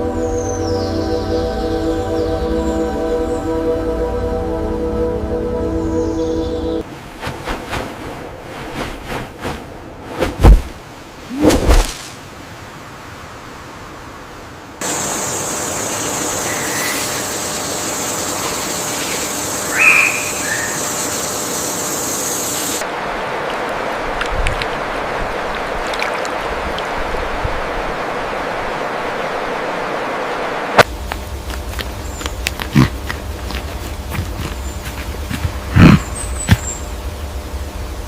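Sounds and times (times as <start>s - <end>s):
high steady hiss: 11.0s - 38.0s
rushing hiss: 14.8s - 22.9s.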